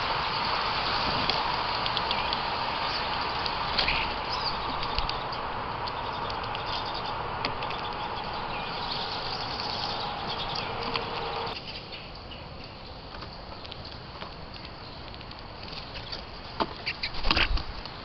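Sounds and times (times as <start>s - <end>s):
steady rushing noise: 0.0s - 13.3s.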